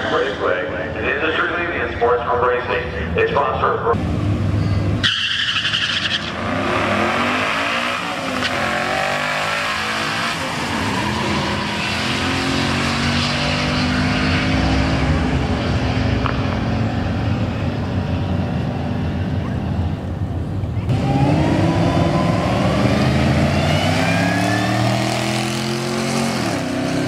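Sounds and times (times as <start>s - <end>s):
car engine accelerating hard: 6.3s - 20.0s, 20.8s - 27.0s.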